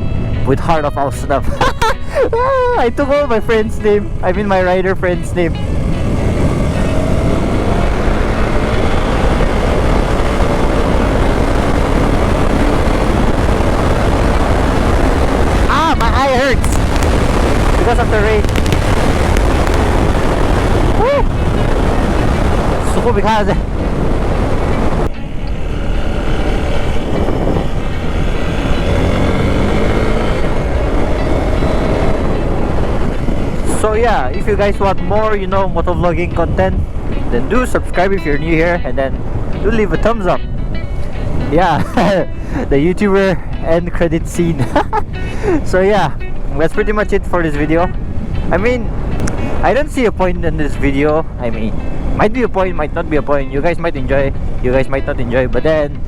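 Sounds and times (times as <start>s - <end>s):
motorcycle engine running: 3.0s - 37.4s
wind on microphone: 3.3s - 46.5s, 47.1s - 53.2s.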